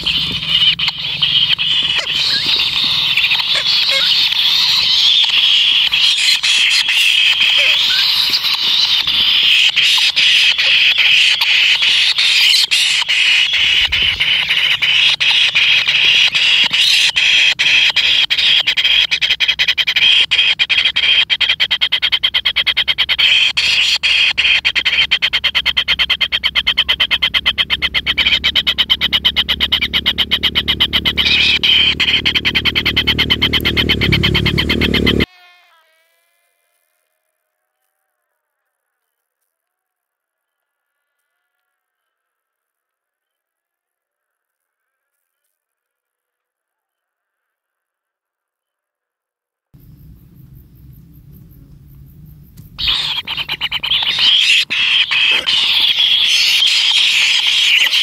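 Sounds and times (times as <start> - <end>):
low rumble: 0.0 - 2.8, 49.8 - 55.7
nestlings buzzing churr: 0.0 - 37.0, 49.8 - 58.0.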